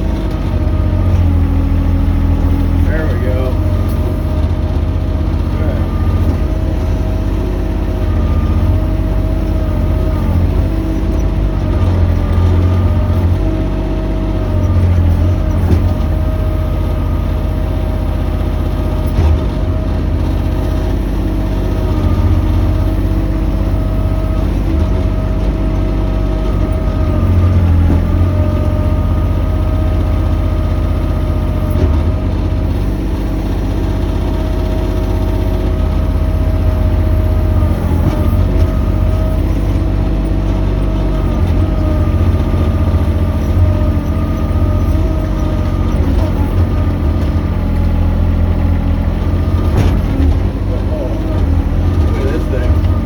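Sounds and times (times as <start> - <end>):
excavator diesel engine running: 0.0 - 53.0
steady whine: 2.4 - 7.4, 48.7 - 53.0.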